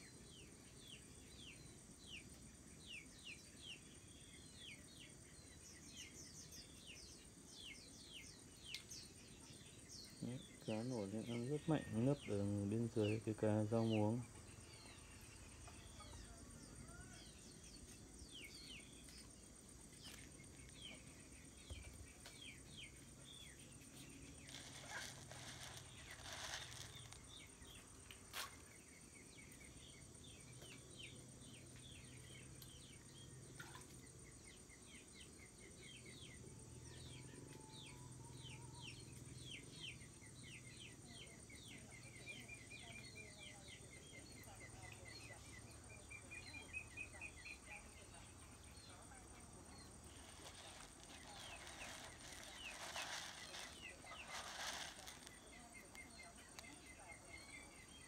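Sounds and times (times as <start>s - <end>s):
small birds chirping: 0.0s - 58.0s
brief rustling: 24.3s - 27.4s, 49.8s - 56.0s.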